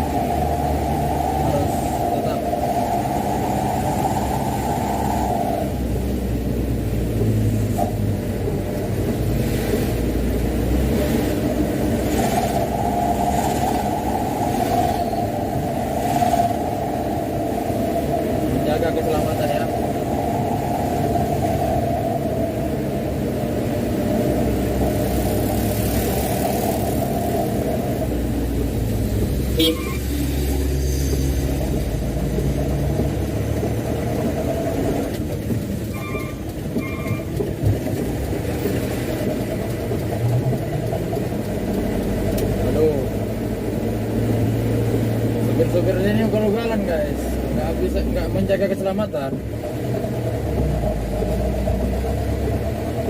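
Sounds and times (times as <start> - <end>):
road noise: 0.0 - 53.0
truck diesel engine rumbling: 0.0 - 53.0
truck horn beeps: 29.5 - 30.1.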